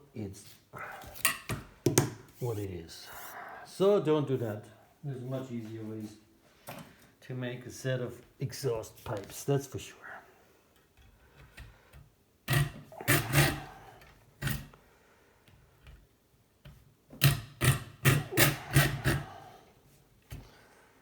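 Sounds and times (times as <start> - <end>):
hand tool cutting metal tube: 12.5 - 13.8, 17.2 - 19.3.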